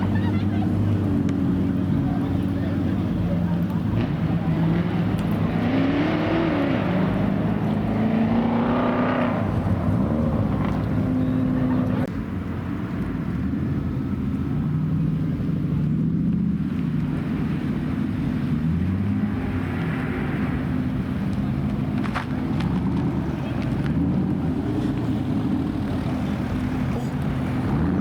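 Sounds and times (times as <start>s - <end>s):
car engine revving: 0.0s - 12.1s.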